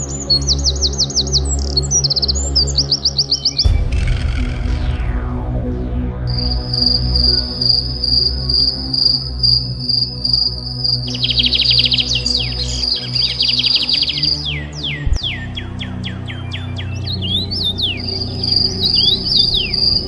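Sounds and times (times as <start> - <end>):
ambient music with low drone: 0.0 - 20.0
insect pulsing high chirp: 6.3 - 20.0
rapid falling bird chirps: 6.3 - 20.0.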